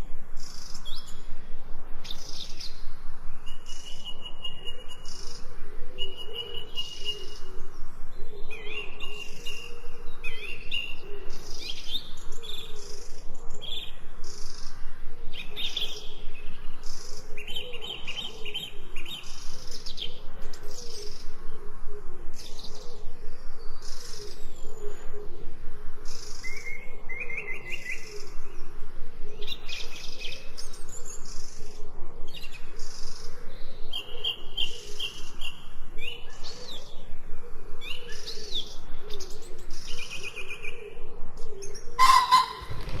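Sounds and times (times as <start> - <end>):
birds chirping and singing: 0.0 - 21.6, 22.3 - 43.0.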